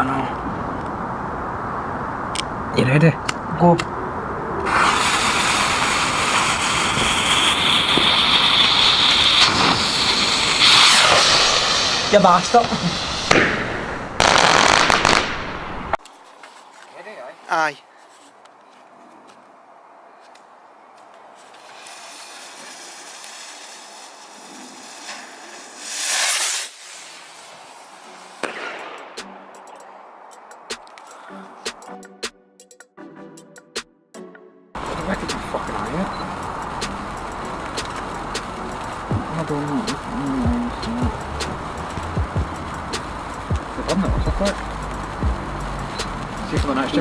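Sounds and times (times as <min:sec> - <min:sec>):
firework hissing: 0:04.6 - 0:16.0, 0:21.4 - 0:29.8, 0:34.8 - 0:47.0.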